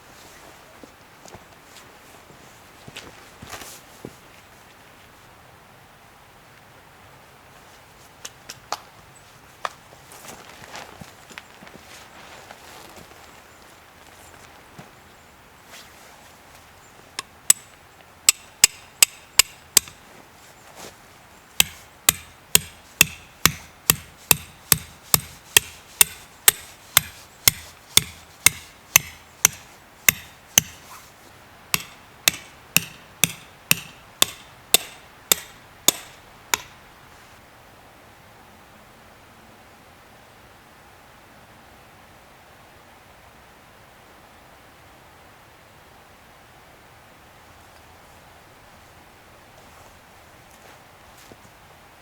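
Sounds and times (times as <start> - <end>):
hammer strikes: 17.5 - 17.7, 18.3 - 20.0, 21.6 - 30.9, 31.8 - 36.8.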